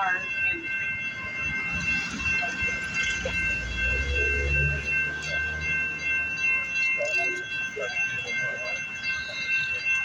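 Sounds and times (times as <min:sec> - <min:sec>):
light-rail train rumbling: 0:00.0 - 0:10.0.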